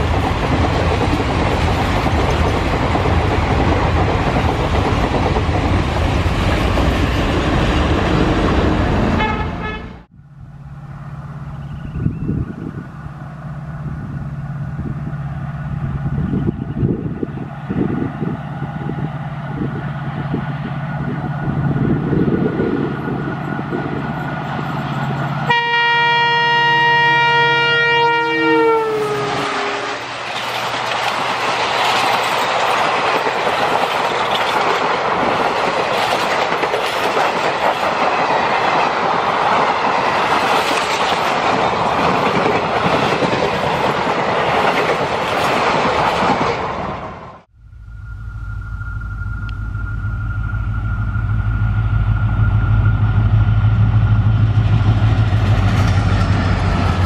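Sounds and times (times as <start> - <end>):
train wheels clattering on rail: 0.0 - 9.1, 30.1 - 46.9, 53.2 - 57.0
diesel locomotive engine rumble: 0.0 - 57.0
locomotive horn blast: 9.0 - 11.1, 25.4 - 30.2.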